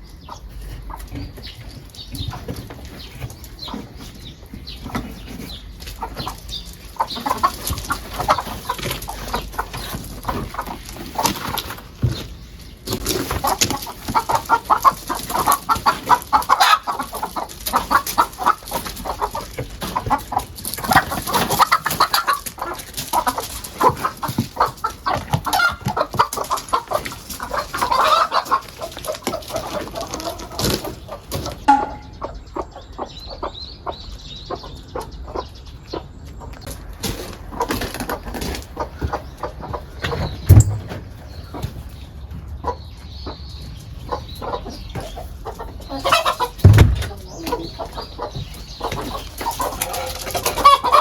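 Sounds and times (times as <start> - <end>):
chickens clucking: 0.0 - 51.0
sharp knocks and clicks: 40.0 - 41.1.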